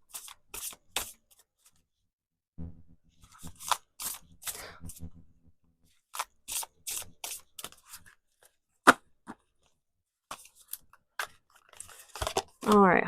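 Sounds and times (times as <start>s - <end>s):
cards shuffling: 3.3s - 4.6s, 6.1s - 8.5s, 10.3s - 12.8s.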